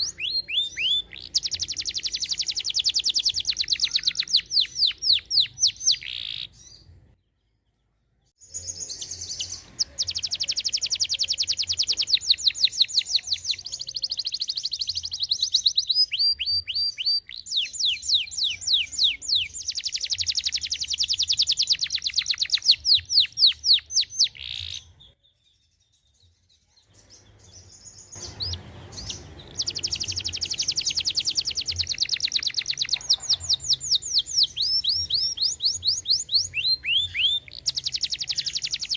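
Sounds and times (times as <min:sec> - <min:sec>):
canary trilling song: 0:00.0 - 0:38.9.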